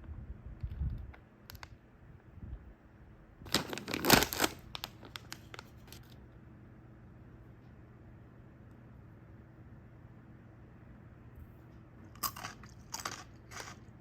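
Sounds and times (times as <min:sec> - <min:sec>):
snack packaging crinkling: 0:03.5 - 0:06.1, 0:12.2 - 0:13.9.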